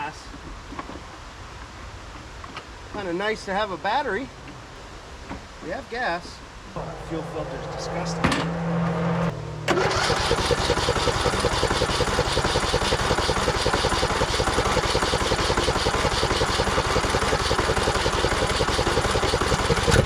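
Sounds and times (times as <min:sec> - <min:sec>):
electric starter cranking engine: 0:09.6 - 0:20.0.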